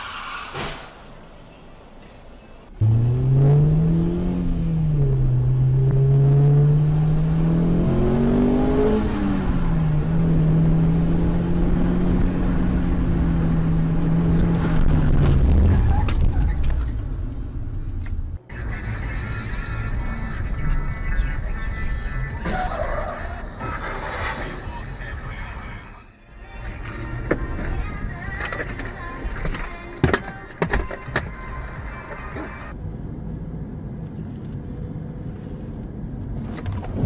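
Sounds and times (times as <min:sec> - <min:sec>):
road noise: 0:00.0 - 0:37.0
car engine accelerating: 0:02.8 - 0:25.2.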